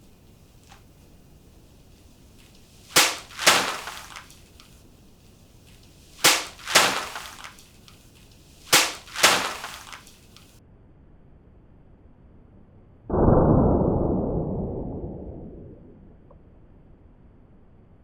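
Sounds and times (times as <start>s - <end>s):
sword cuts: 3.0s - 4.4s, 6.2s - 7.6s, 8.7s - 10.1s.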